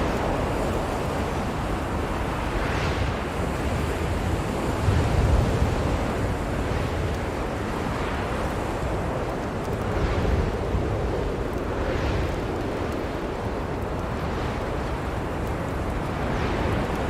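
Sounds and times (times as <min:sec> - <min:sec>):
blizzard wind blowing: 0:00.0 - 0:17.0.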